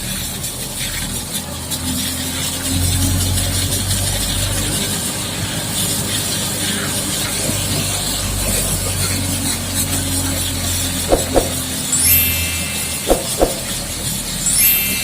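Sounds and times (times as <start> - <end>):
sharp knocks: 11.1 - 13.7.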